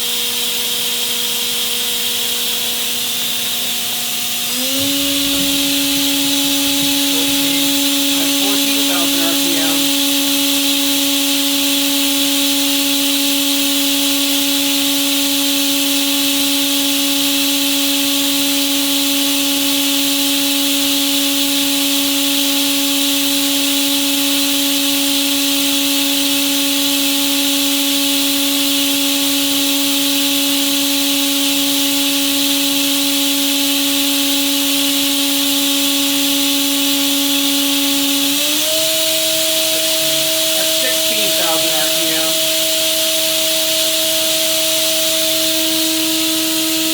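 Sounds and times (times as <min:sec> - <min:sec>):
machine spindle whining: 0:00.0 - 0:46.9
even hiss: 0:05.2 - 0:10.0, 0:39.7 - 0:42.5.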